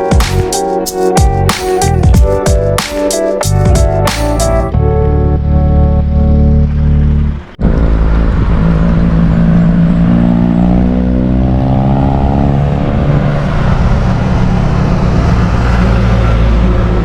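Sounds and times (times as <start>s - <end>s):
music: 0.0s - 7.3s
vehicle engine passing by: 6.6s - 17.0s.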